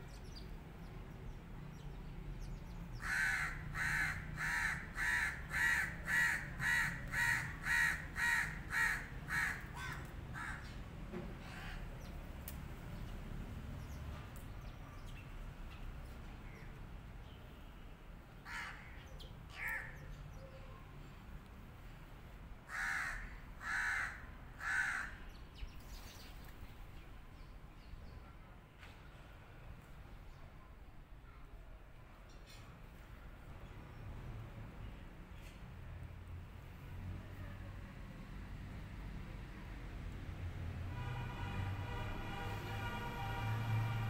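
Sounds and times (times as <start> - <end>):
bird cawing: 3.0 - 10.8, 18.4 - 20.1, 22.7 - 25.3.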